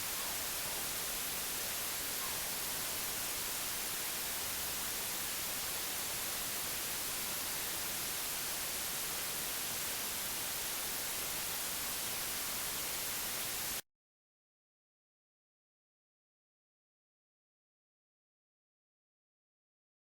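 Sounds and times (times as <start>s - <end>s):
white noise hiss: 0.0s - 13.8s.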